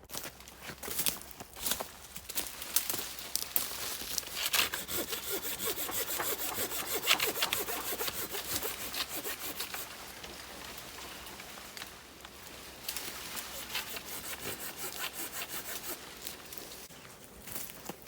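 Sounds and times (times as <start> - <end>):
hand saw cutting wood: 4.2 - 10.4, 13.1 - 16.6.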